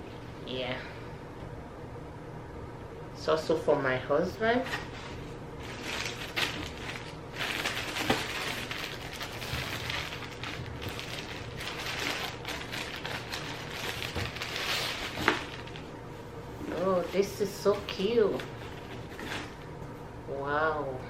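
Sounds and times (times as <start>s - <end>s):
plastic packaging crinkling: 4.8s - 16.0s, 16.7s - 19.7s.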